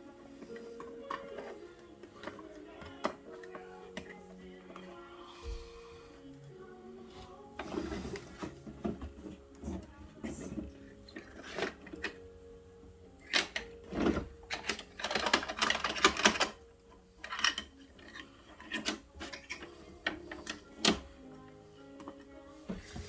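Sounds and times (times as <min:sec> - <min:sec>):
plastic toy rattling: 0:10.1 - 0:12.5, 0:13.2 - 0:21.1
plastic toy clicks and knocks: 0:11.1 - 0:12.2, 0:13.2 - 0:21.1.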